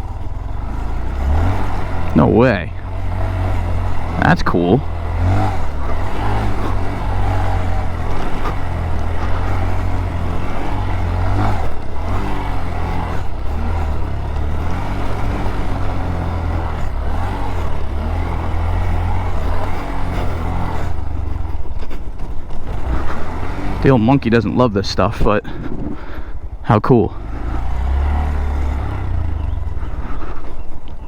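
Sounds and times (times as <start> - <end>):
small motorcycle engine running: 0.0 - 31.0
wind rumble on microphone: 25.4 - 26.6.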